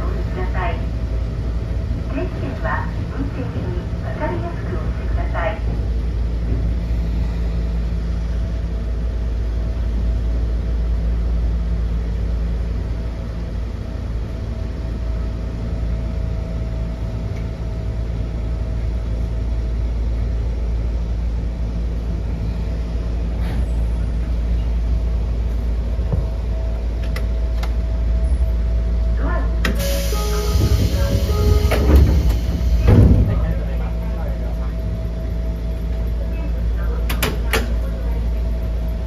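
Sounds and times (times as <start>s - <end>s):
constant hum: 0.0s - 39.0s
electric train rumble: 0.0s - 39.0s.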